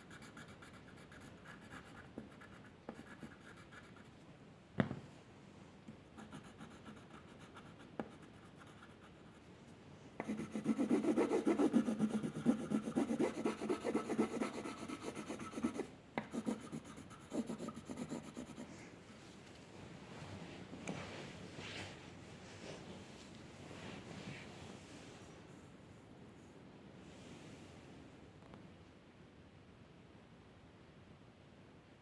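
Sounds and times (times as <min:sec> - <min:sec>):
pencil shading on paper: 0:06.2 - 0:09.2, 0:10.2 - 0:18.7.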